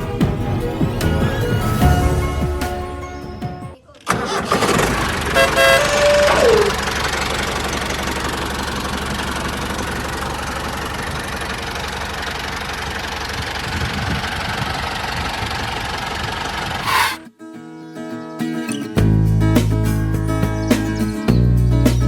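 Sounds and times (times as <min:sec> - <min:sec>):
mini tractor engine running: 0:04.0 - 0:16.9.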